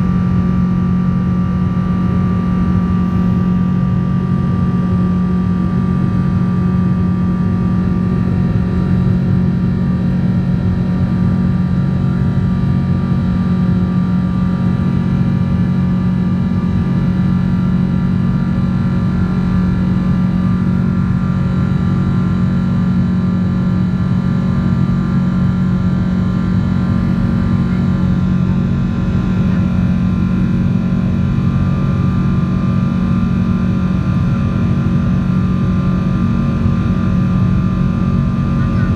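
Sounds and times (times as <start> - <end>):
high engine whine: 0.0 - 38.9
jet engine drone: 0.0 - 38.9.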